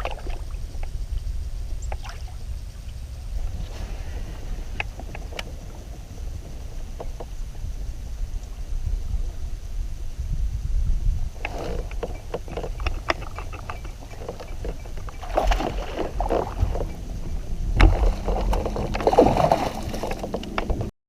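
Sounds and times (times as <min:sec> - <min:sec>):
low rumble: 0:00.0 - 0:20.9
water swishing: 0:03.2 - 0:08.8, 0:11.3 - 0:20.8
gear knocking against kayak hull: 0:04.7 - 0:08.0, 0:11.3 - 0:20.9.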